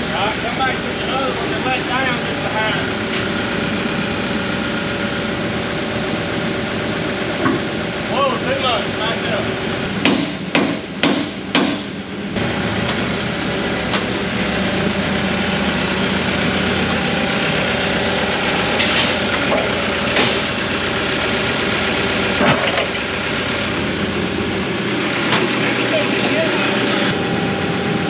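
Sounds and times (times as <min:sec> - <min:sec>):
machine engine idling: 0:00.0 - 0:28.0
sharp metal knocks and clanks: 0:09.8 - 0:13.0.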